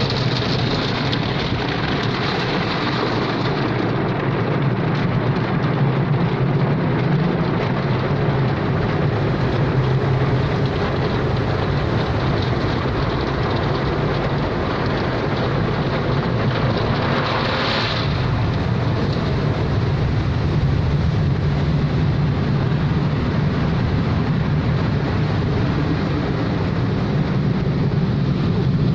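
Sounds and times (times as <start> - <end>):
low motor hum: 0.0 - 28.9
water spray and machinery: 0.0 - 28.9.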